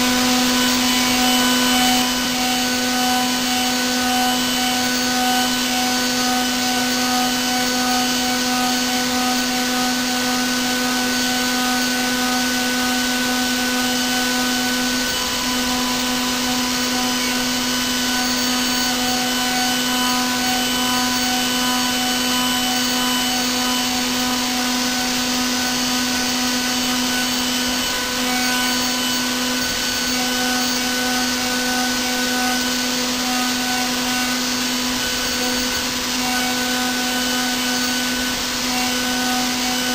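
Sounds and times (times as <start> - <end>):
milling machine whine: 0.0 - 39.9.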